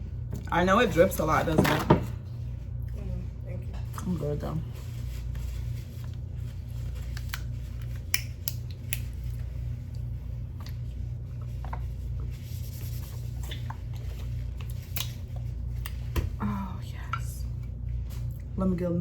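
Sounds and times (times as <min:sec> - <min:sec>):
steady low hum: 0:00.0 - 0:19.0
chewing with wet crackles: 0:07.1 - 0:12.2, 0:13.3 - 0:16.1.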